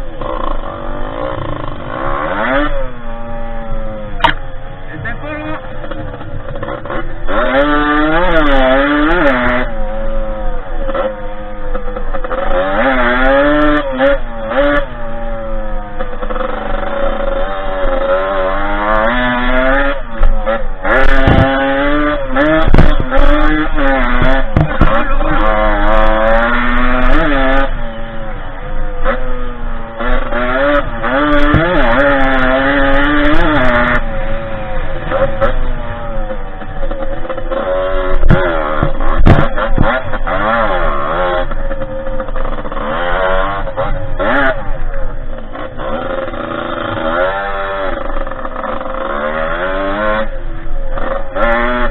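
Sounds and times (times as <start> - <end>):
dirt bike engine revving: 0.0 - 51.9
sharp knocks: 24.2 - 25.0, 38.2 - 40.0.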